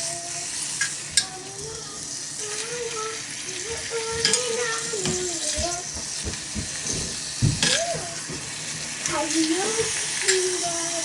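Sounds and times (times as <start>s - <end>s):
pork sizzling in oil: 0.0s - 11.0s.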